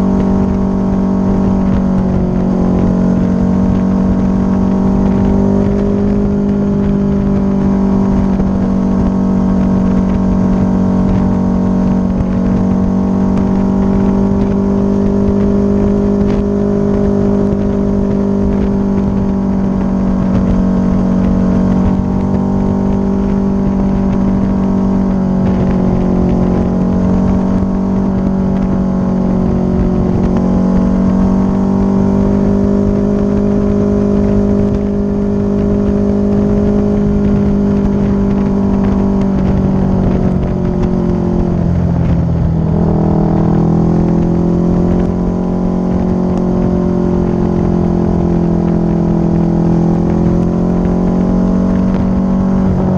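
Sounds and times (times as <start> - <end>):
motorcycle engine cruising: 0.0 - 52.9
wind noise: 0.0 - 52.9.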